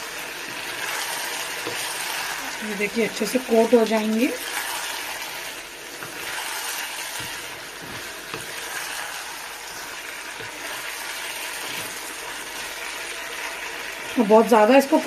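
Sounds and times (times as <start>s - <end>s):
sauce sizzling in a pan: 0.0s - 15.0s.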